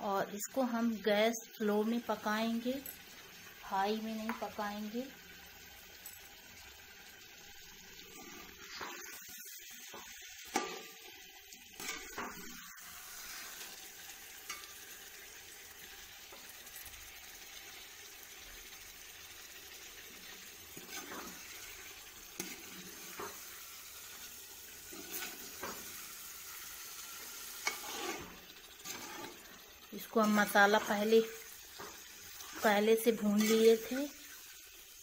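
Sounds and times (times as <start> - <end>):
chicken sizzling in pot: 0.0 - 35.0
spoon scraping metal pot: 20.7 - 23.5, 24.8 - 26.0, 27.4 - 34.0.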